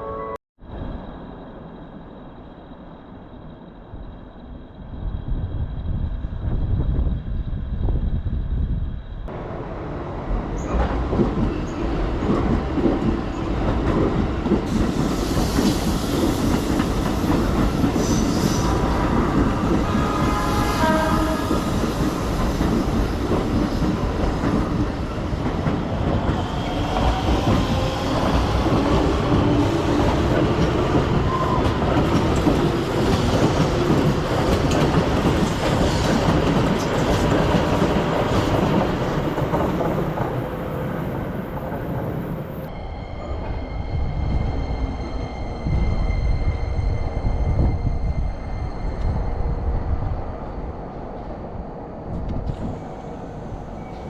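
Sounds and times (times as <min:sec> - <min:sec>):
train wheels clattering over rail joints: 0:21.0 - 0:40.7.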